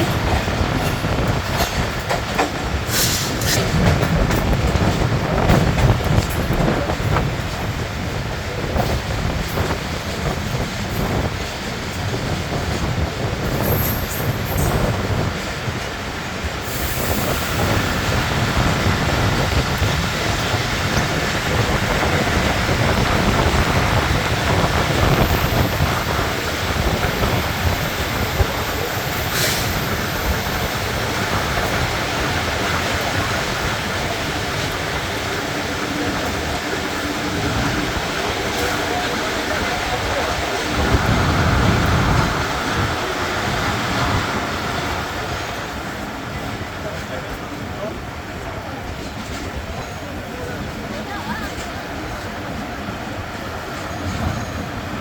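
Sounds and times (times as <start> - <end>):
train wheels clacking: 0.0 - 47.4.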